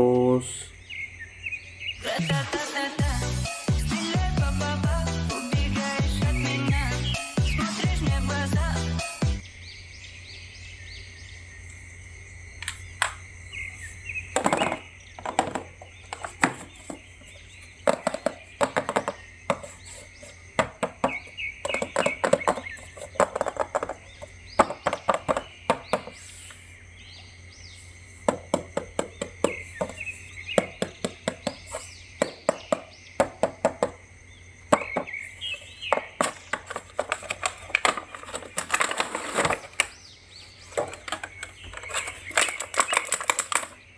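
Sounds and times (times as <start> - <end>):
background hum: 3.0 - 43.9
plastic packaging clicks and taps: 35.9 - 40.0, 40.7 - 43.8.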